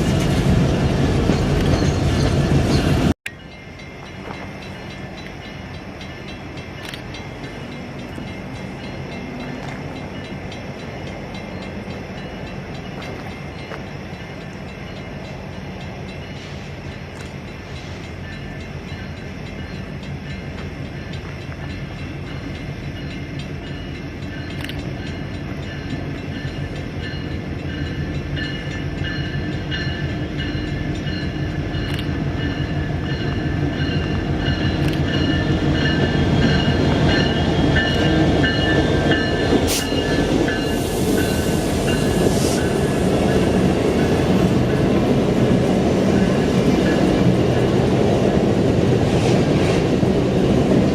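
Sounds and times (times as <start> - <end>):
train cars rumbling on track: 0.0 - 50.9.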